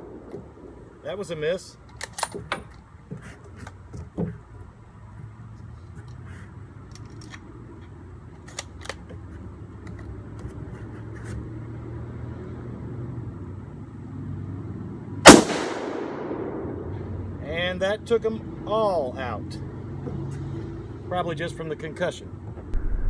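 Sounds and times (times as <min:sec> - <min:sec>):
rifle shot with echo: 0:15.2 - 0:17.1
low steady hum: 0:22.7 - 0:23.0.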